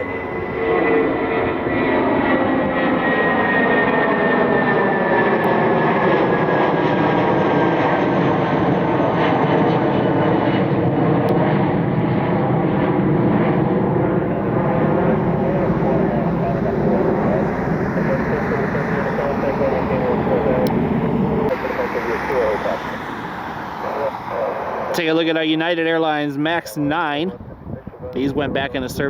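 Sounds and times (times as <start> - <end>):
jet engines passing: 0.0 - 29.0.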